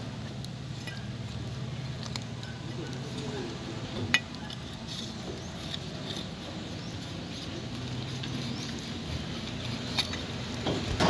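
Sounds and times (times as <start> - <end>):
rain pattering: 0.0 - 4.4.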